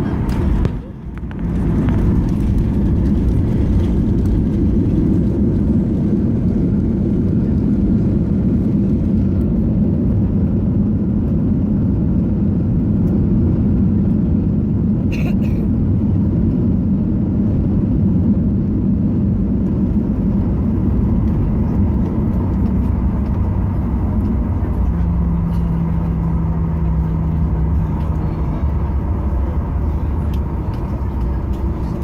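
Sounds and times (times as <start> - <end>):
jet cabin rumble on ground: 0.0 - 32.0
steady hum: 19.1 - 32.0.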